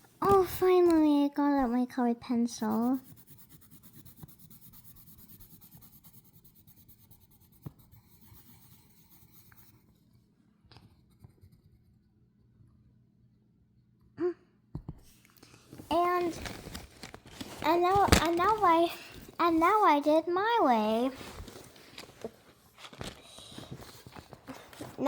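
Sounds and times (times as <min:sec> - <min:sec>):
pencil rubbing on paper: 0:02.5 - 0:10.0.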